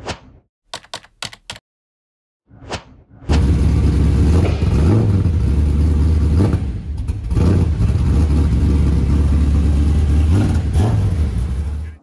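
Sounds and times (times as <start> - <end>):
loud car engine idling and blipping: 3.4 - 12.0.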